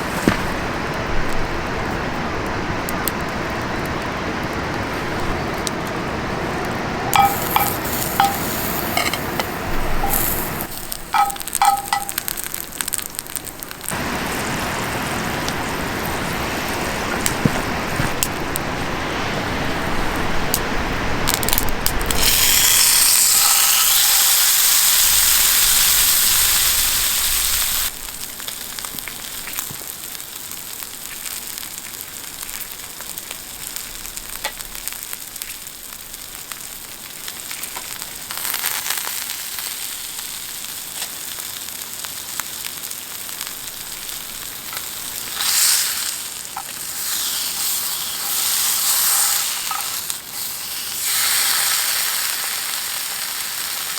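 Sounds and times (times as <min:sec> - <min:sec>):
meat sizzling in a hot pan: 0:07.1 - 0:18.2, 0:21.2 - 0:53.9.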